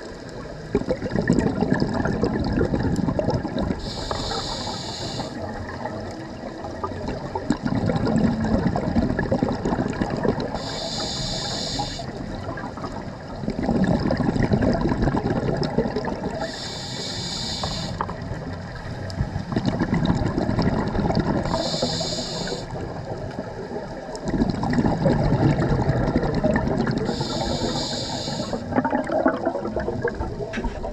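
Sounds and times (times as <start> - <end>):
bubbling exhales underwater: 0.0 - 30.9
hissing regulator inhales: 3.8 - 5.5, 10.5 - 12.2, 16.4 - 18.2, 21.4 - 22.8, 27.0 - 28.7.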